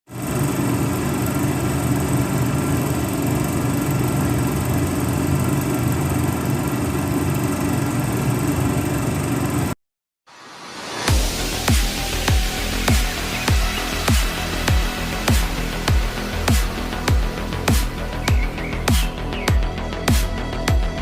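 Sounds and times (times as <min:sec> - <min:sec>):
engine running: 0:00.1 - 0:09.8, 0:10.8 - 0:21.0
music: 0:10.3 - 0:21.0.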